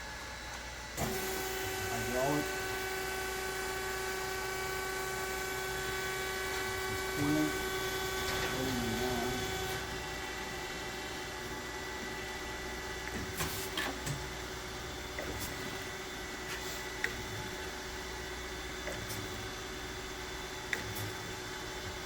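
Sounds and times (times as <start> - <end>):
grinder machine humming: 0.0 - 22.0.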